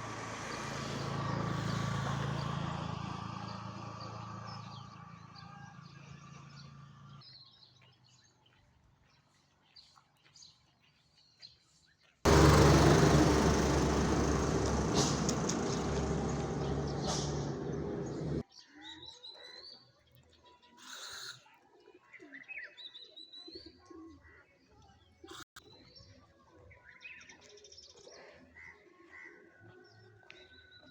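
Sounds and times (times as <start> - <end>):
loud even noise: 12.3 - 18.4
birds chirping and whistling: 12.4 - 18.4.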